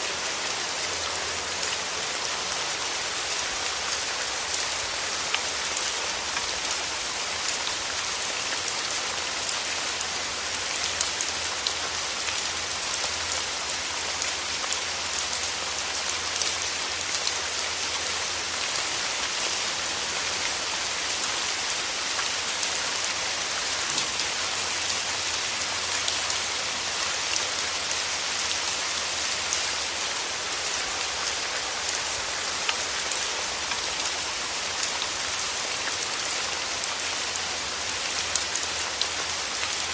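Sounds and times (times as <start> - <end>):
rain tapping on a window: 23.7 - 24.6.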